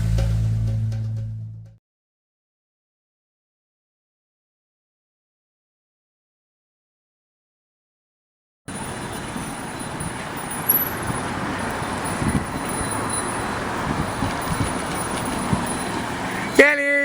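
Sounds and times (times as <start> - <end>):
street traffic noise: 8.7 - 17.0.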